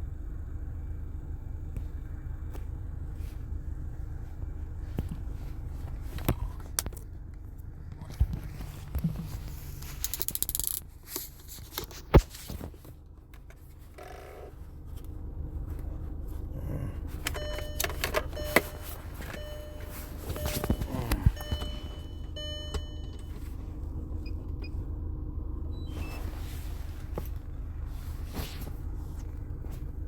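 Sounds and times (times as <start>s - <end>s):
handling clicks and knocks: 17.3s - 23.6s
short steady tones: 17.4s - 23.5s.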